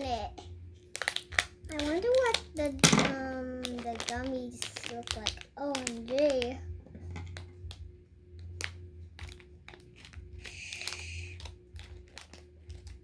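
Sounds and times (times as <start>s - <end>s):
plastic packaging crinkling: 0.8s - 7.8s, 8.4s - 13.0s.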